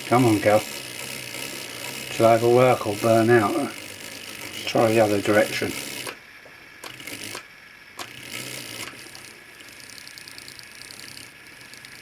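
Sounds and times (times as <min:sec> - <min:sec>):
model train motor whirring: 0:00.0 - 0:12.0
small clicks: 0:06.8 - 0:12.0.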